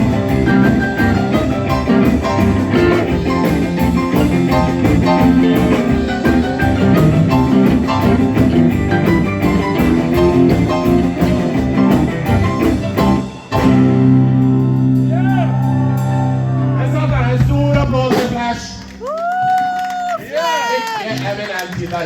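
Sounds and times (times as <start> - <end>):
steady drum beat: 0.0 - 14.2, 16.9 - 19.8
rock band playing boogie-woogie: 0.0 - 20.1
guitar: 0.0 - 22.0.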